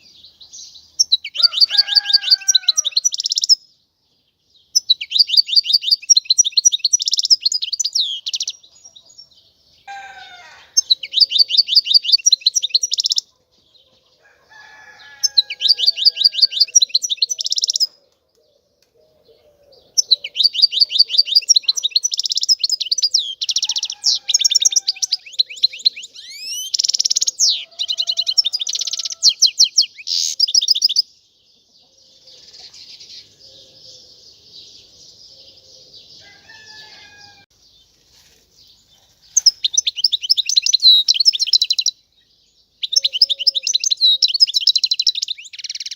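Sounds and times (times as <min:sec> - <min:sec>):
goldfinch twittering song: 0:04.7 - 0:08.6, 0:10.8 - 0:13.2, 0:20.0 - 0:31.1, 0:39.3 - 0:42.0.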